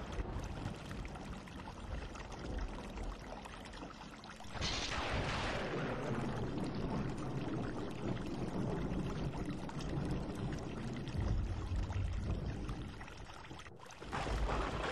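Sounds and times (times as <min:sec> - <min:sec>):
low rumble: 0:04.5 - 0:13.4.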